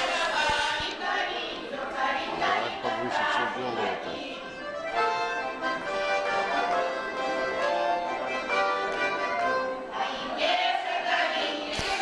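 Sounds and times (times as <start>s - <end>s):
group of voices singing: 0.0s - 4.9s, 9.8s - 12.0s
instruments accompanying: 0.0s - 12.0s.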